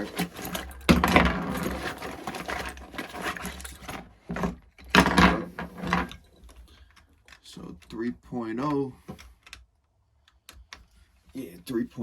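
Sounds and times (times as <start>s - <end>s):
metal tools rattling and clinking: 0.0s - 8.0s.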